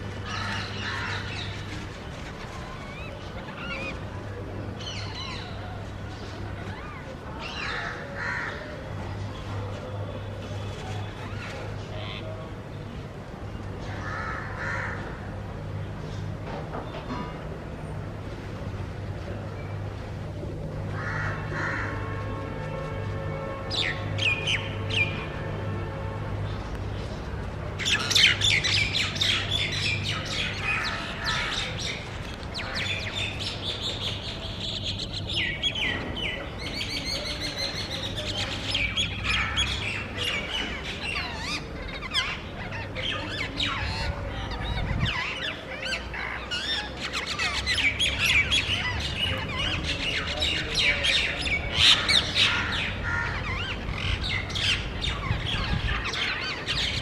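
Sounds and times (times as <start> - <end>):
parakeets screeching: 36.8 - 57.0.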